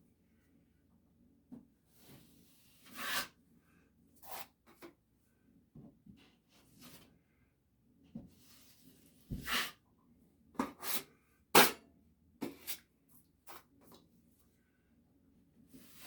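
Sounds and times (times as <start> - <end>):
taping knife scraping compound: 2.8 - 3.4, 4.2 - 4.6.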